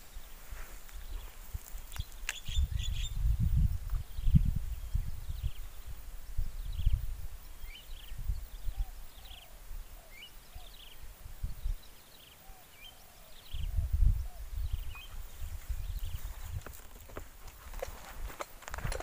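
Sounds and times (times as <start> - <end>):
wild birds chirping: 0.0 - 19.0.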